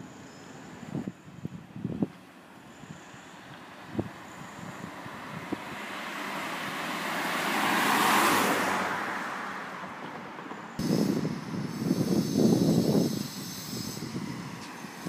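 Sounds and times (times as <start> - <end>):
car passing by: 3.7 - 13.0.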